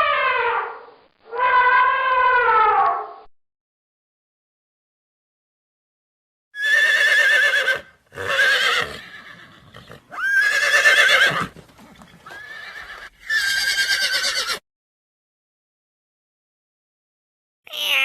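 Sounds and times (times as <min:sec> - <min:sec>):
horse whinnying: 0:06.6 - 0:14.6.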